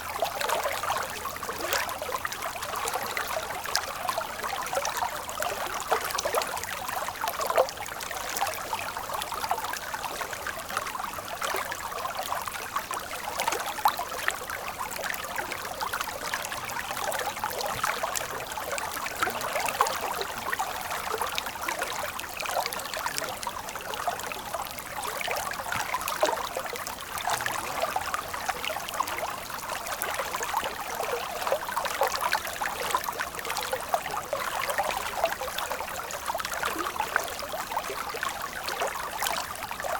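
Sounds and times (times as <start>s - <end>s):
stream water splashing: 10.0s - 39.9s.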